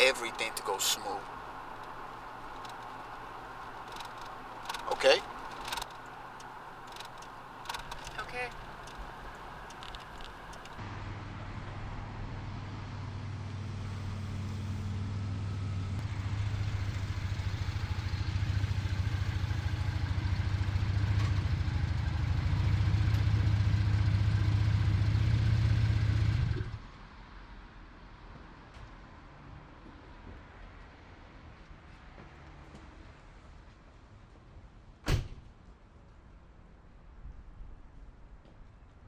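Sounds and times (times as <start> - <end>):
car engine drone while driving: 0.0 - 26.9
road noise: 0.0 - 39.0.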